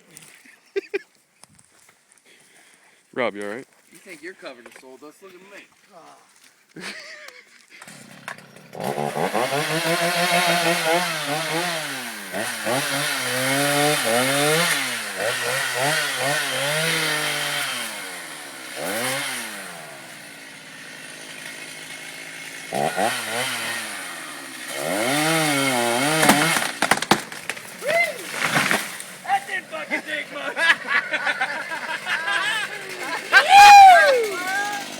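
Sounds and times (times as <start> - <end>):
chainsaw engine revving: 7.8 - 34.9.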